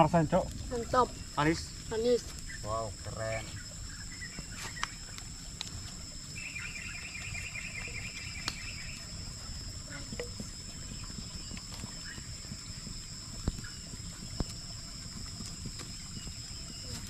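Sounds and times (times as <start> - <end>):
rapid chirping trill: 0.0 - 5.4, 6.1 - 17.0
insects droning: 0.0 - 17.0
faint clicks: 7.8 - 8.6.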